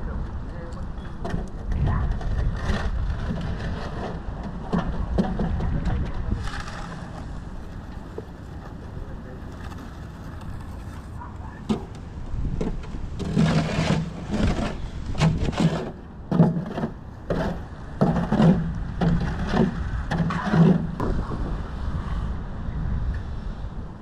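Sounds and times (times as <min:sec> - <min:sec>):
hand tool scraping concrete: 0:02.0 - 0:08.8, 0:13.2 - 0:21.0.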